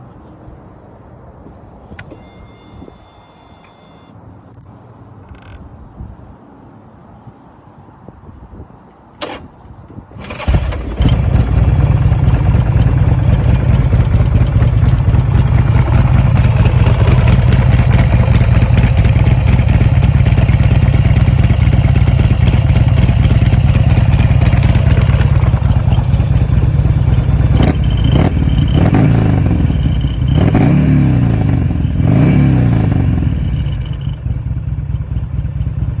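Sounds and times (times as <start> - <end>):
motorcycle engine idling and revving: 9.3 - 36.0.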